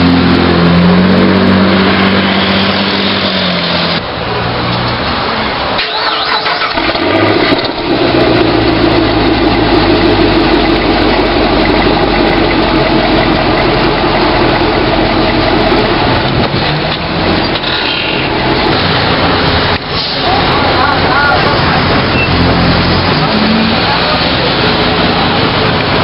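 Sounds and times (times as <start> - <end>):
car engine running: 6.4 - 26.0.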